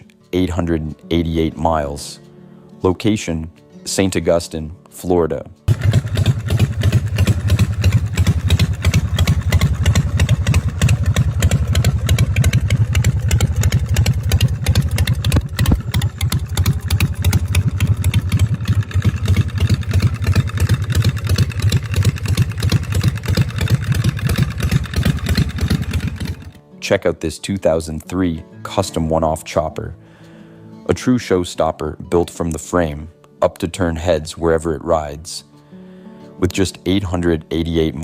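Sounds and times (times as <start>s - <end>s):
motorcycle engine running: 5.7s - 26.6s.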